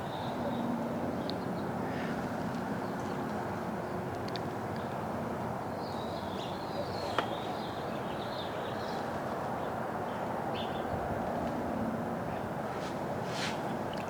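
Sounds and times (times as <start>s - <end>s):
sparrows chirping: 5.7s - 10.9s.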